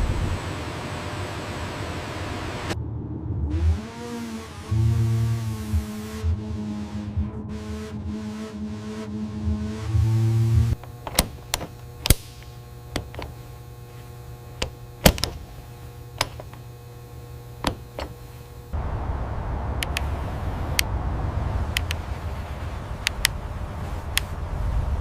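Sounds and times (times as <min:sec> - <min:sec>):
even rumbling noise: 0:00.0 - 0:25.0
steady low hum: 0:00.0 - 0:25.0
sharp clicks and knocks: 0:10.7 - 0:13.7, 0:14.5 - 0:16.8, 0:17.6 - 0:18.6.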